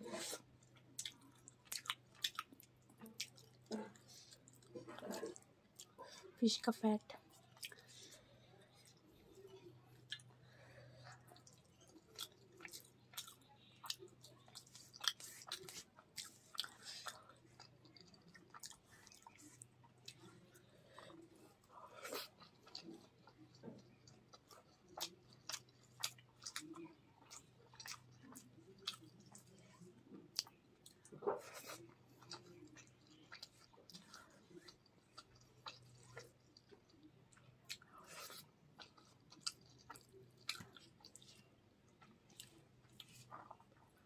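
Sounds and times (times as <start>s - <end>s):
mouth chewing clicks and smacks: 0.6s - 6.0s, 10.0s - 10.4s, 11.0s - 20.3s, 22.1s - 43.7s.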